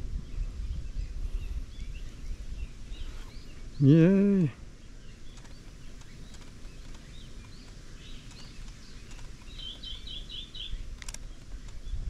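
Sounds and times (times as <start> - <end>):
small bird chirping: 4.8 - 12.0
sharp click: 10.9 - 11.8.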